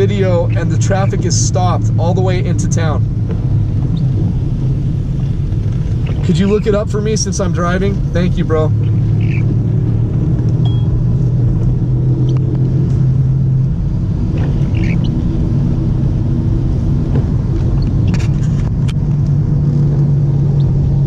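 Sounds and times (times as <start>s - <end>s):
car engine drone: 0.0s - 21.0s
road noise inside car: 0.0s - 21.0s.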